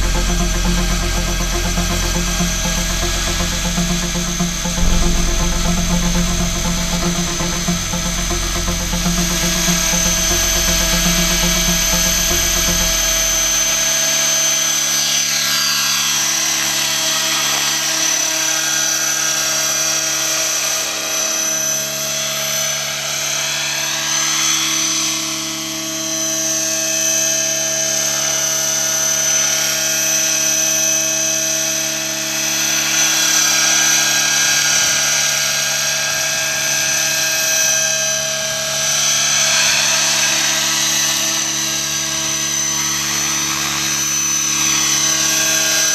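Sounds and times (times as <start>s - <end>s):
helicopter drive whine: 0.0s - 14.2s.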